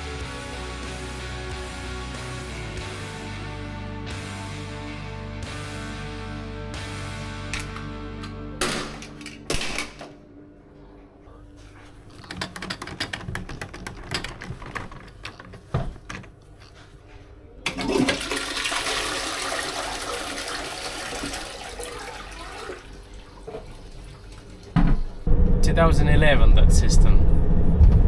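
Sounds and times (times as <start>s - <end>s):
clicks and taps: 12.1s - 16.8s
toilet flushing: 17.6s - 25.3s.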